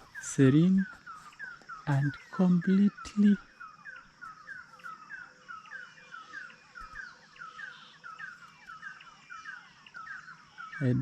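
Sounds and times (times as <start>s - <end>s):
faint bird calls: 0.0s - 11.0s.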